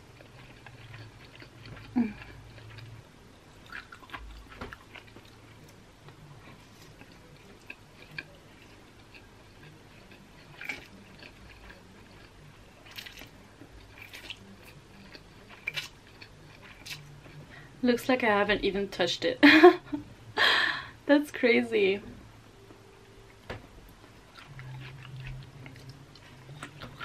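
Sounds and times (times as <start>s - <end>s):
wet chewing: 0.0s - 3.0s, 3.6s - 17.4s, 23.9s - 27.0s.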